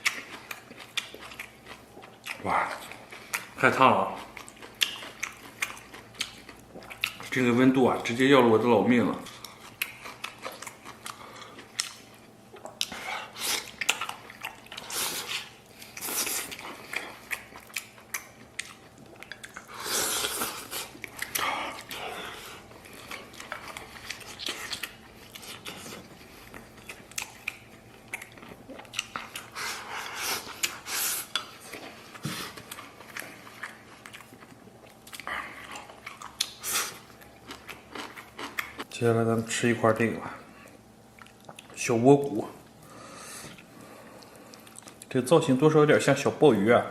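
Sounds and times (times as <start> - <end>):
wet chewing and biting: 0.0 - 7.4, 9.2 - 38.9.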